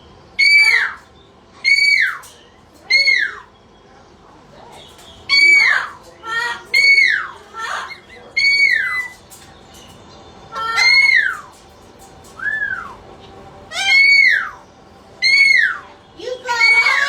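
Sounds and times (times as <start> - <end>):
parrot calling loudly: 0.4 - 3.5, 5.2 - 9.2, 10.5 - 11.6, 12.4 - 13.0, 13.7 - 17.0.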